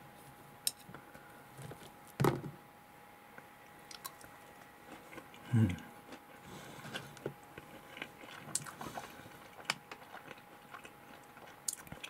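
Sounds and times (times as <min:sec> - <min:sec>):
chewing mouth clicks: 0:03.9 - 0:04.3, 0:07.2 - 0:12.0.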